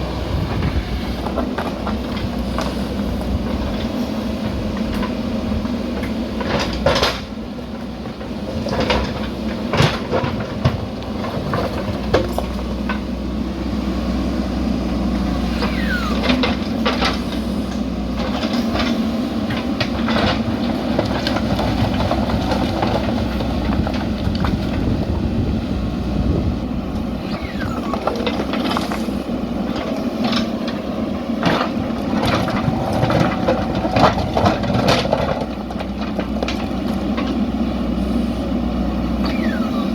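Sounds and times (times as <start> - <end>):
diesel engine running: 0.0 - 39.9
short squeals: 15.4 - 17.3, 27.1 - 29.4, 39.2 - 39.9.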